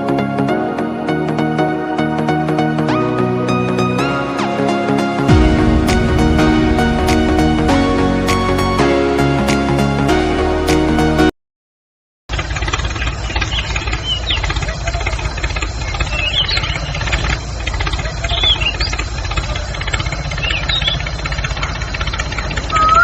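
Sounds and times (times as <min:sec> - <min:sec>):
low pulsing engine rumble: 0:00.0 - 0:11.2, 0:12.3 - 0:23.0
short high chirps: 0:22.7 - 0:23.0.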